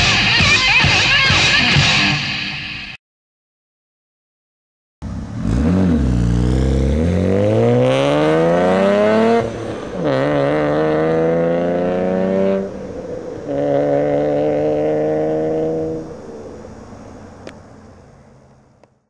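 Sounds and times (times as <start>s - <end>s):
car engine accelerating: 5.0s - 18.9s.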